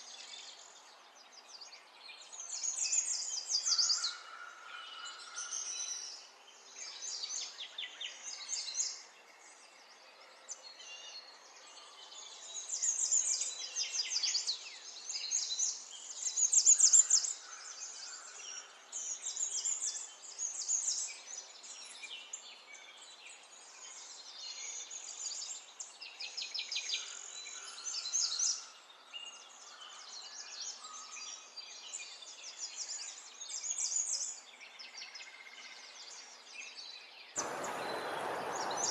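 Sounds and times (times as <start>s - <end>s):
songbirds chirping and trilling: 0.0s - 38.9s
faint steady hiss: 37.4s - 38.9s.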